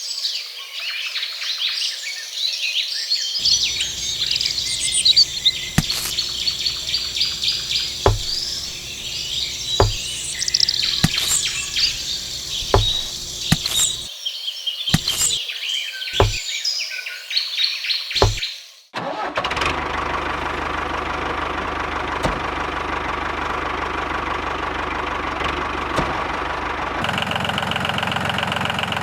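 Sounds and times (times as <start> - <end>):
birds chirping: 3.4 - 14.1, 14.9 - 15.4, 16.2 - 16.4, 18.2 - 18.4
insects calling: 3.4 - 14.1, 14.9 - 15.4
sharp clicks or knocks: 3.4 - 14.1, 15.0 - 15.4, 16.2 - 16.4, 18.2 - 18.4.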